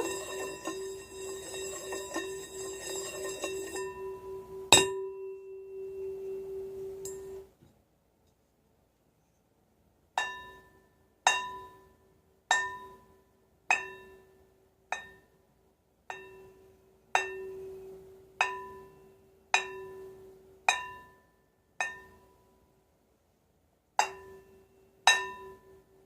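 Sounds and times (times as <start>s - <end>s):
metal bell clanging: 0.0s - 7.4s
low ringing hum: 0.0s - 7.5s, 16.2s - 20.7s.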